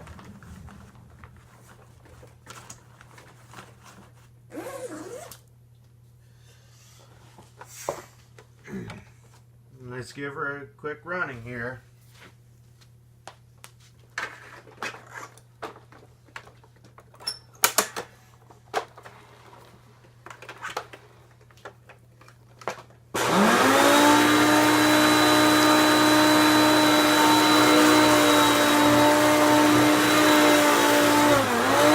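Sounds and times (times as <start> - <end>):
vacuum cleaner motor whine: 23.2 - 31.9.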